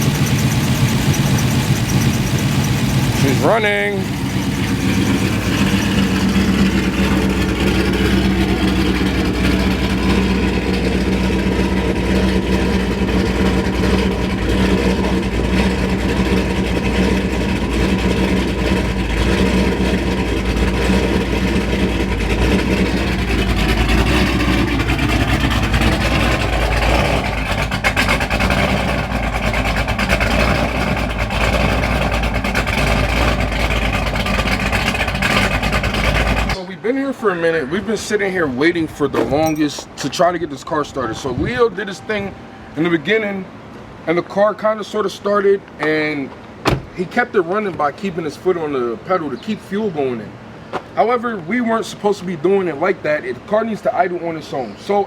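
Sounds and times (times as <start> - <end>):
car engine running: 0.0 - 36.6, 46.4 - 47.1.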